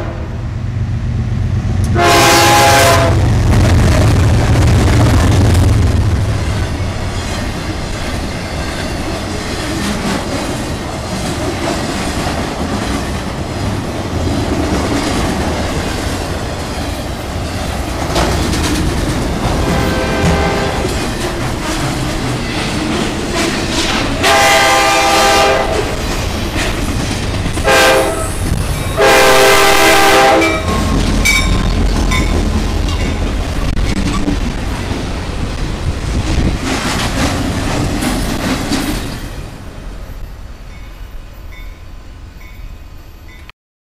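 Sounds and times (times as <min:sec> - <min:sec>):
diesel locomotive horn blasts: 0:00.0 - 0:00.5, 0:01.8 - 0:03.3, 0:19.5 - 0:21.0, 0:24.2 - 0:26.0, 0:27.6 - 0:30.8
train rumble: 0:00.0 - 0:43.5
train wheel clatter: 0:03.4 - 0:39.6.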